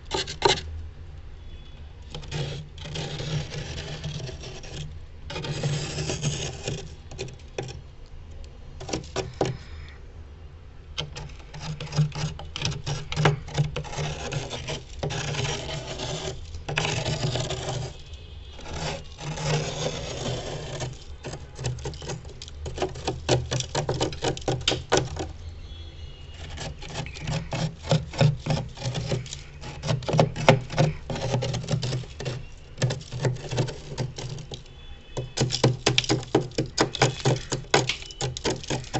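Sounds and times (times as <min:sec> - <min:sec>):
spoon scraping frost: 0:00.0 - 0:00.6, 0:02.1 - 0:07.8, 0:08.8 - 0:09.8, 0:11.0 - 0:25.4, 0:26.2 - 0:38.9.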